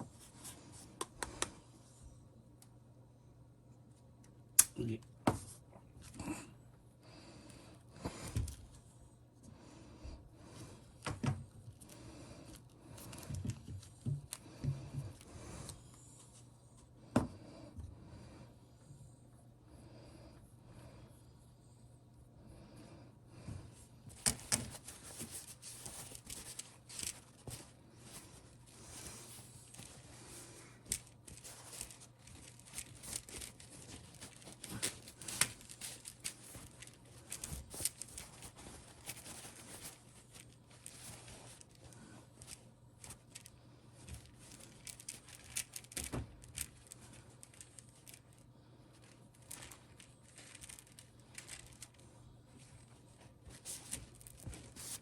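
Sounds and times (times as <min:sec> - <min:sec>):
faint low hum: 0:00.0 - 0:55.0
rustling scraping and clicks of handwork: 0:10.9 - 0:16.5, 0:24.1 - 0:55.0.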